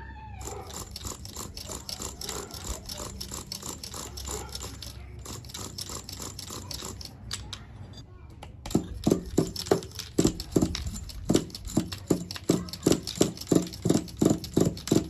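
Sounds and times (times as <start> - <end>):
rattling and scraping clicks: 0.4 - 7.8, 8.7 - 15.0.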